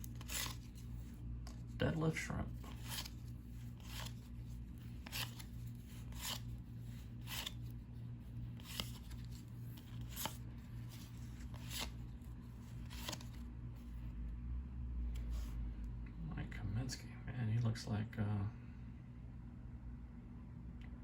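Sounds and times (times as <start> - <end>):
cards sliding off a stack: 0.0 - 1.6, 2.7 - 4.3, 4.9 - 7.7, 8.5 - 12.1, 12.7 - 13.4.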